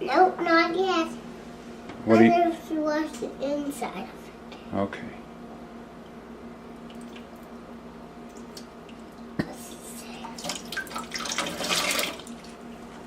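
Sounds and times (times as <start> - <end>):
water splashing in a sink: 6.8 - 7.5, 8.2 - 13.0.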